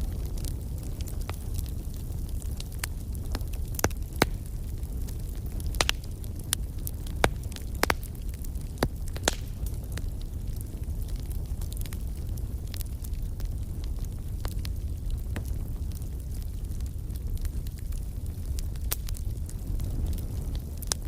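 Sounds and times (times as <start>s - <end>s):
campfire crackling and popping: 0.0s - 21.0s
low rumble of fire: 0.0s - 21.0s.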